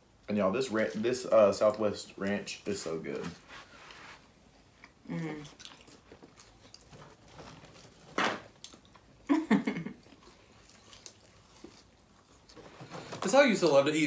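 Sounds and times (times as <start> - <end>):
people chewing: 4.7 - 13.1
person humming mm: 5.0 - 5.5.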